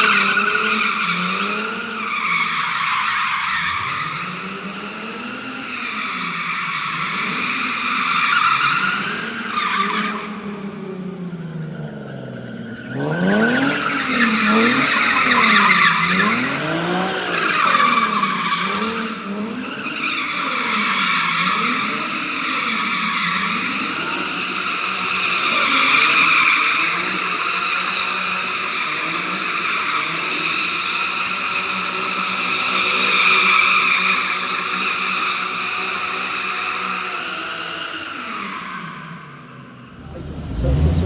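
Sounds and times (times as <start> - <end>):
car engine revving: 10.3 - 20.7, 39.6 - 41.0.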